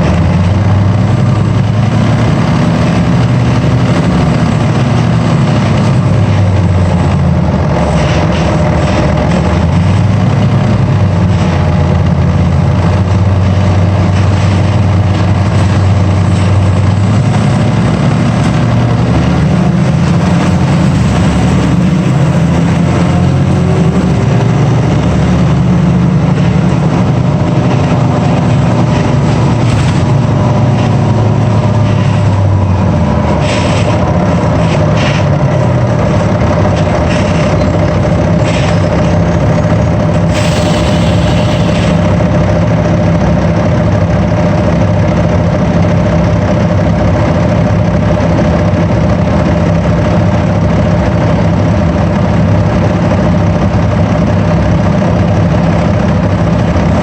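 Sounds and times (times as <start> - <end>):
heavy vehicle engine running: 0.0 - 57.0.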